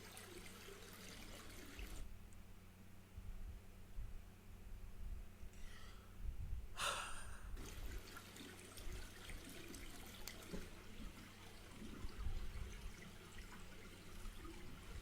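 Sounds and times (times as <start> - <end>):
liquid pouring: 0.0 - 2.0, 7.6 - 15.0.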